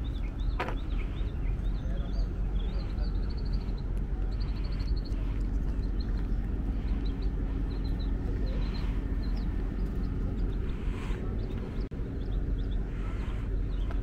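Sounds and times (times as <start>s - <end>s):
small birds chirping: 0.0s - 14.0s
steady low rumble: 0.0s - 14.0s.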